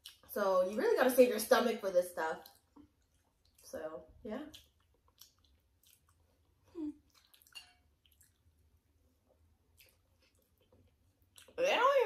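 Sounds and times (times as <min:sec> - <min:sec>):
wet chewing sounds: 0:00.0 - 0:00.3, 0:02.3 - 0:11.6.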